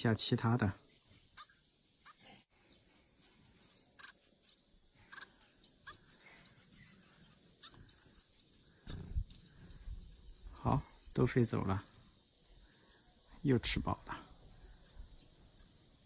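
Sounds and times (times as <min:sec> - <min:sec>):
high bird chirps: 0:00.8 - 0:11.2, 0:14.6 - 0:16.0.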